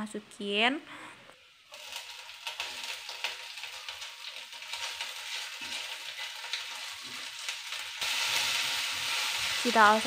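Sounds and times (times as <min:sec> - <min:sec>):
food sizzling in hot oil: 0:01.4 - 0:10.0
spatula scraping a pan: 0:01.7 - 0:09.7.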